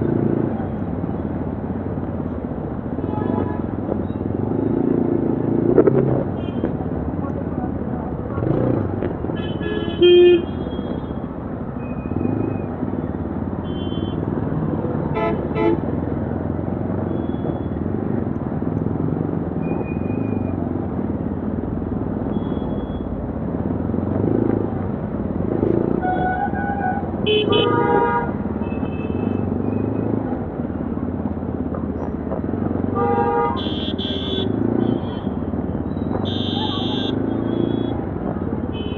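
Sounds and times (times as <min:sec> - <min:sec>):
vehicle horns tooting: 0:09.4 - 0:11.2, 0:13.6 - 0:14.4, 0:15.1 - 0:15.9, 0:25.9 - 0:29.9, 0:32.9 - 0:38.9.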